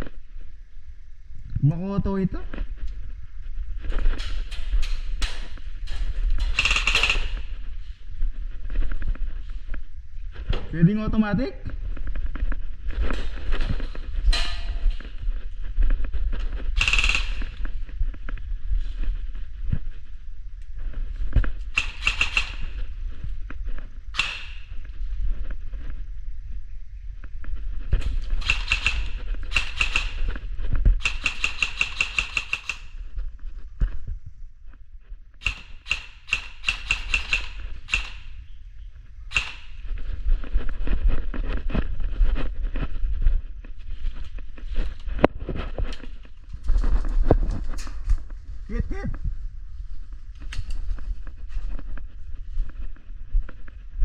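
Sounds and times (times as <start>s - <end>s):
constant low rumble: 0.0s - 54.0s
airsoft guns firing: 6.4s - 7.6s, 16.8s - 17.7s, 21.7s - 22.8s, 24.1s - 24.8s, 28.3s - 30.4s, 31.0s - 33.0s, 35.4s - 38.4s, 39.3s - 39.9s.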